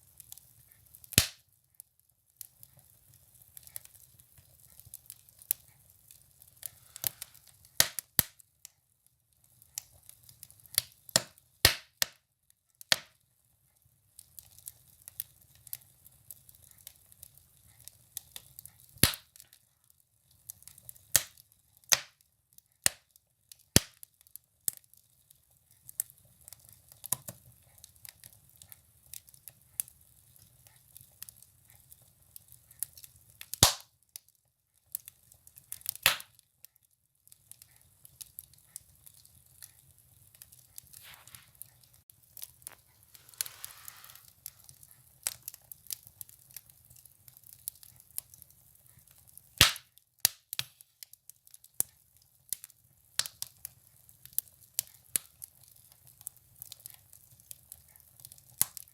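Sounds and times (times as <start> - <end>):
firewood crackling and popping: 0.0 - 1.6, 2.2 - 13.4, 14.0 - 58.9
low rumble of fire: 37.3 - 49.7.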